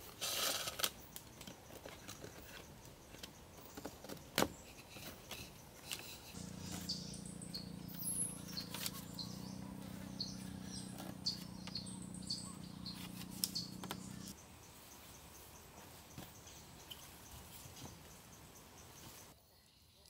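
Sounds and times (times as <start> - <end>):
birds chirping: 1.0 - 20.0
steady low hum: 6.3 - 14.4.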